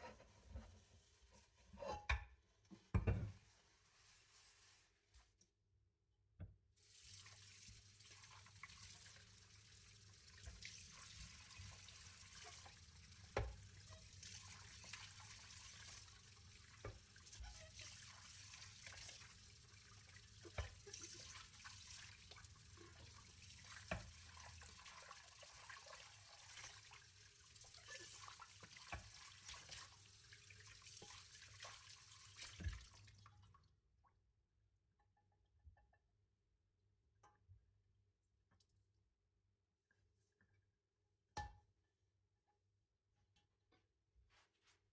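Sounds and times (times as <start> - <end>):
kitchen tap running into sink: 6.8 - 33.5.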